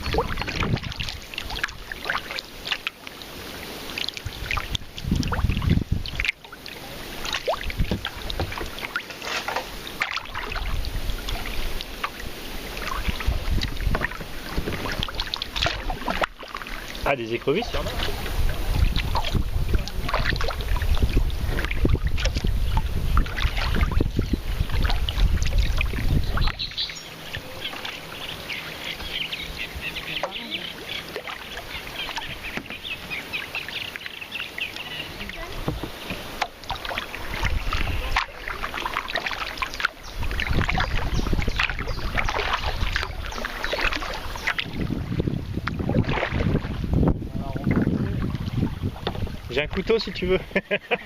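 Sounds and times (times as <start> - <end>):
wind rumble on microphone: 0.0 - 2.0, 4.2 - 6.3, 6.9 - 8.8, 9.7 - 27.6, 35.1 - 38.9, 40.0 - 50.6
dripping water: 0.0 - 50.2
paddle splashes: 0.0 - 51.0.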